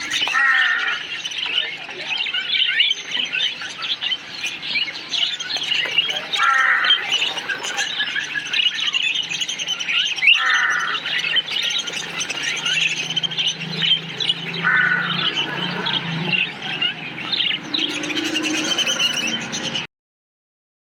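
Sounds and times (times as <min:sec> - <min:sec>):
loud parakeet squawks: 0:00.0 - 0:01.3, 0:05.2 - 0:19.8
parakeets chirping: 0:00.0 - 0:19.9.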